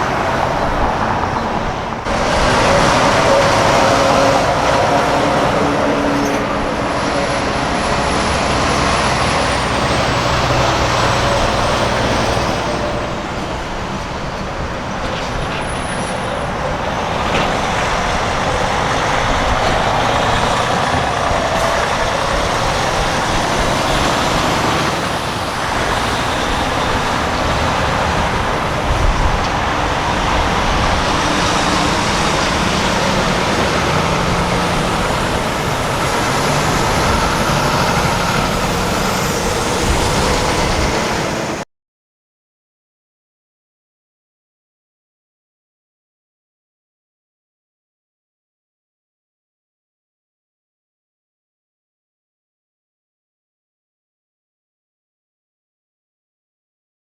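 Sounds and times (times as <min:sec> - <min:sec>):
trucks driving past: 0:00.0 - 0:41.7.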